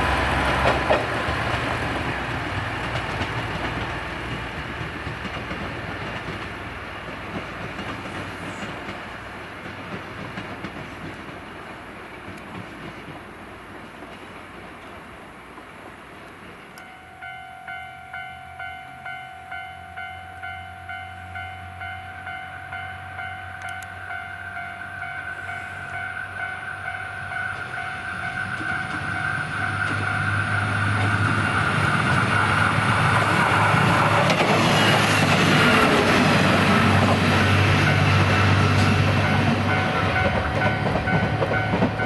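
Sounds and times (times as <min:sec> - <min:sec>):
diesel railcar engine and wheels: 0:00.0 - 0:42.0
level-crossing warning bell: 0:16.8 - 0:31.5, 0:37.7 - 0:42.0.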